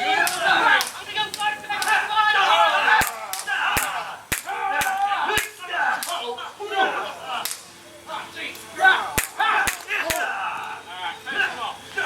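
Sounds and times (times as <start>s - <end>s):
people shouting: 0.0s - 7.6s, 8.8s - 12.0s.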